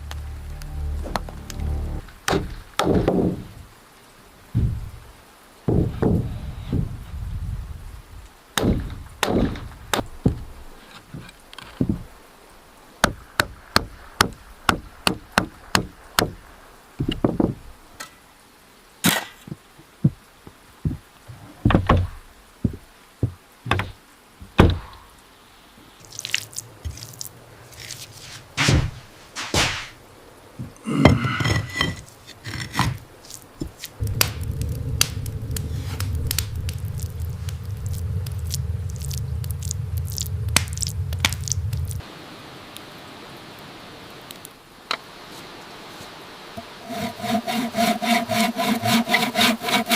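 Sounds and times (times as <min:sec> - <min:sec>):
scraping: 0:31.0 - 0:42.0
steady low hum: 0:34.0 - 0:42.0.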